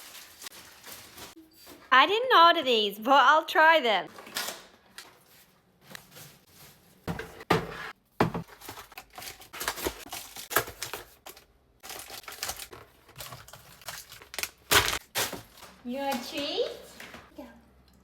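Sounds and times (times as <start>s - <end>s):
bags crinkling and rustling: 0.0s - 1.9s, 8.3s - 17.3s
items being set down: 5.9s - 8.9s.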